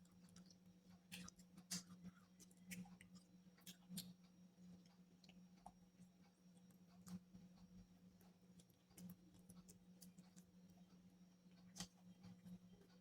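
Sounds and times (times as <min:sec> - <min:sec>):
faint steady hum: 0:00.0 - 0:13.0
chewing food mouth clicks: 0:11.5 - 0:12.4.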